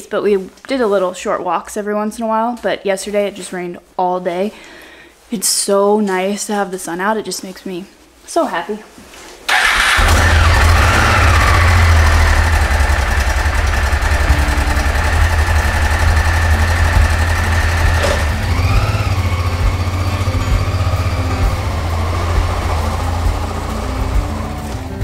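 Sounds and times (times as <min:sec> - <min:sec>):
motorcycle engine rumbling: 0:09.5 - 0:25.0.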